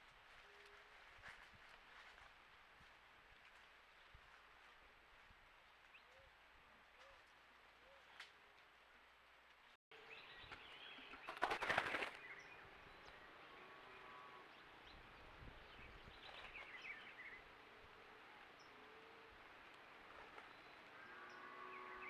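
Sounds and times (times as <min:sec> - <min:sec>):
faint outdoor background: 0:00.0 - 0:22.0
bird wings flapping: 0:11.0 - 0:12.3.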